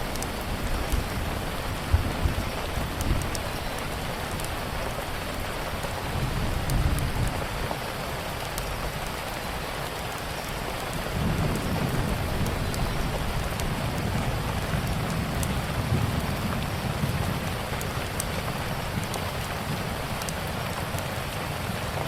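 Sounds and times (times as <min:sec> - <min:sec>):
heavy rain: 0:00.0 - 0:22.0
wood fire crackling: 0:00.0 - 0:22.0
thunder rolls: 0:11.2 - 0:17.6.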